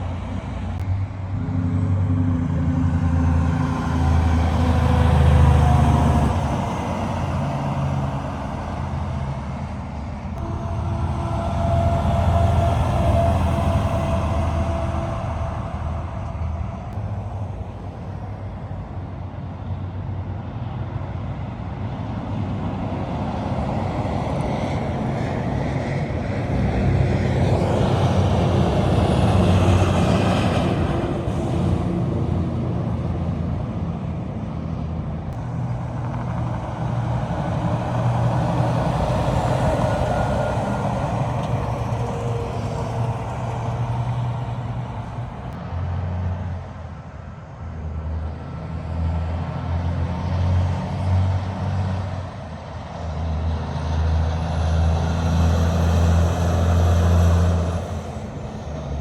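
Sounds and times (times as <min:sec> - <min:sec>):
diesel truck engines passing: 0:00.0 - 0:59.0
tyre and road noise: 0:21.9 - 0:59.0.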